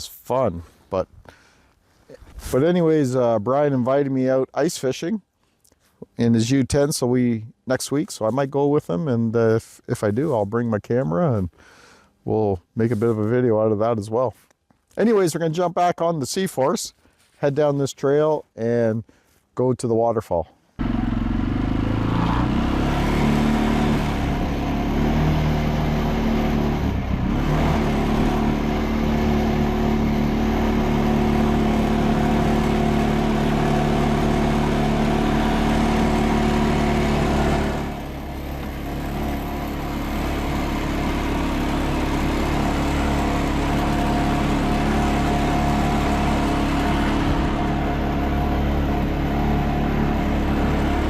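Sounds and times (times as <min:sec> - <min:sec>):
atv engine running: 0:20.8 - 0:51.0.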